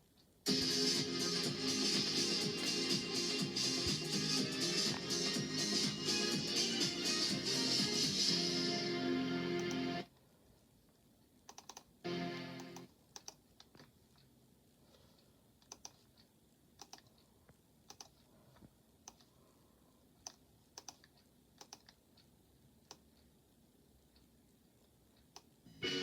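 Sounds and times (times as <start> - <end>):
faint irregular clicks: 10.9 - 11.9, 12.7 - 14.4, 15.1 - 19.4, 20.2 - 23.4.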